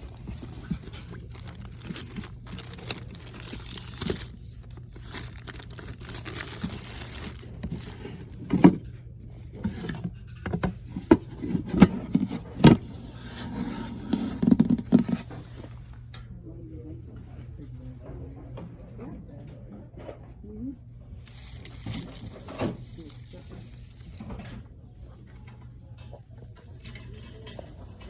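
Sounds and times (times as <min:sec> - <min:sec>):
goods rustling and scraping: 0:00.0 - 0:16.1, 0:21.2 - 0:24.8.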